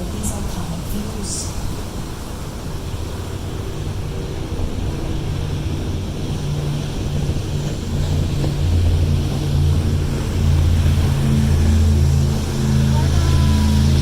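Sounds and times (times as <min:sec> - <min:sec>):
boat engine drone: 0:00.0 - 0:14.0.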